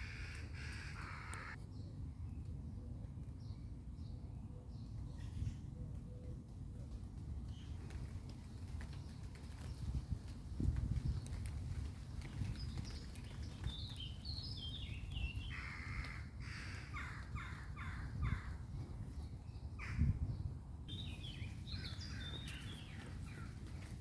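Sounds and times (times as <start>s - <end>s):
harsh bird calls: 0.0s - 1.6s
wild birds calling: 0.0s - 1.6s, 14.5s - 18.6s, 20.9s - 23.6s.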